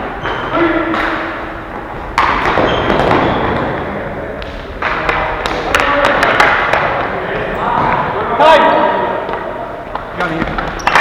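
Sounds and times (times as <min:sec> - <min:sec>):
sharp taps of hockey sticks: 0:00.2 - 0:03.2, 0:04.4 - 0:07.1, 0:09.3 - 0:11.0
loud thud in echoing hall: 0:00.2 - 0:08.1.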